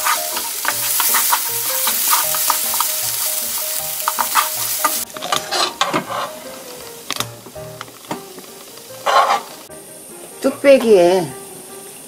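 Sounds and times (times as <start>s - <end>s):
spoon and chopsticks clicking in pan: 0.0s - 6.1s
wooden spatula scraping a pan: 0.0s - 9.7s
food sizzling in oil: 0.0s - 12.0s.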